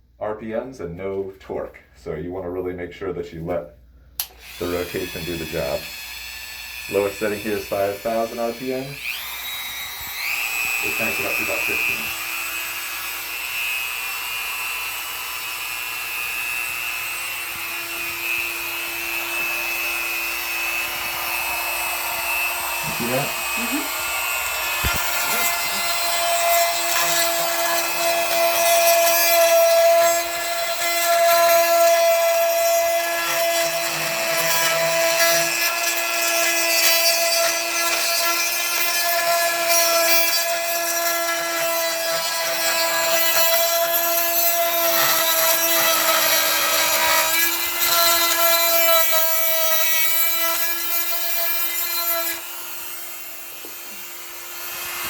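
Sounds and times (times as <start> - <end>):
rotary tool motor whine: 4.3 - 49.8
gritty scraping of grout: 22.7 - 30.4.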